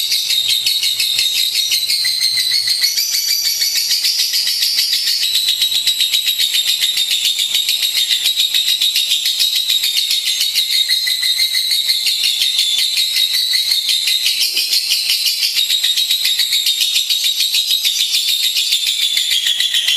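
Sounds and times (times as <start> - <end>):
bird chattering: 10.1 - 17.0.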